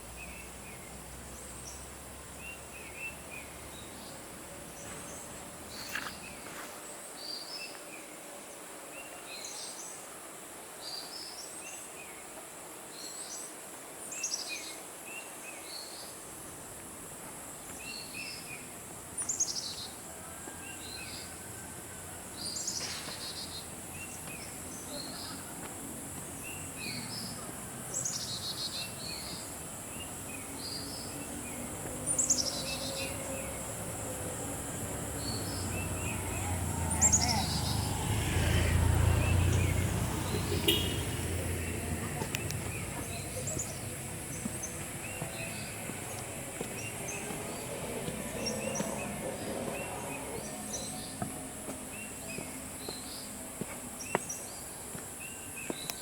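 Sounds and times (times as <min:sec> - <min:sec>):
birds chirping: 0:22.4 - 0:56.0.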